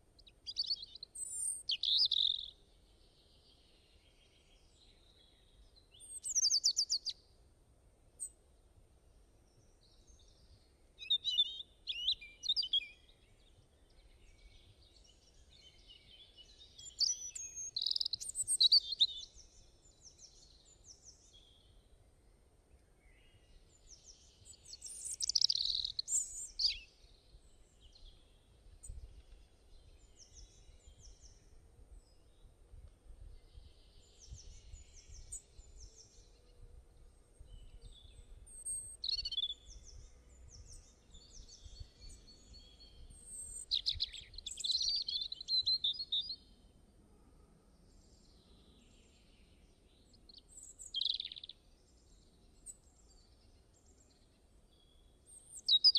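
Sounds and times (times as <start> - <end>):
songbirds chirping and trilling: 0.0 - 7.5, 8.1 - 55.9.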